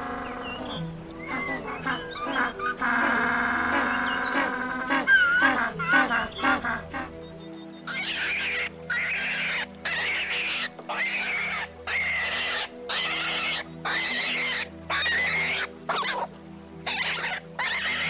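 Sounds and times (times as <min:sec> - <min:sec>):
background music: 0:00.0 - 0:18.0
animal giving harsh high calls: 0:07.9 - 0:18.0.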